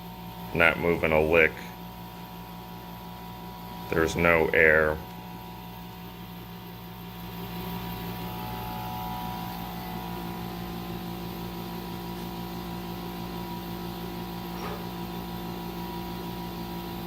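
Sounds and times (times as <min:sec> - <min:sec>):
air conditioner electrical hum: 0:00.0 - 0:17.0.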